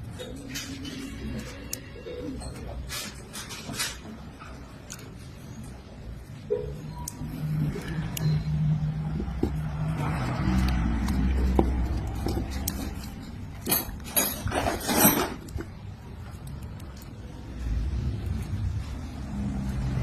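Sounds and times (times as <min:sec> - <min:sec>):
small hard parts clinking: 0:06.9 - 0:17.3.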